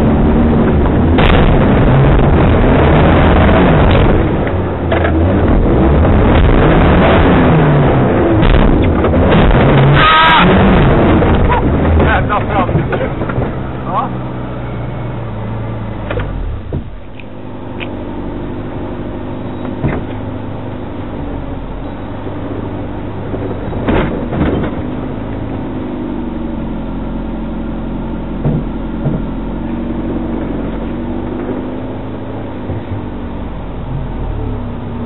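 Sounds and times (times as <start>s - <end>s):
vehicle engine running at low speed: 0.0s - 35.0s
vehicle knocks and clunks: 3.8s - 5.6s, 8.3s - 10.0s, 10.8s - 13.9s, 16.0s - 18.0s, 19.5s - 20.4s, 22.4s - 25.8s, 28.3s - 31.4s, 32.6s - 33.2s.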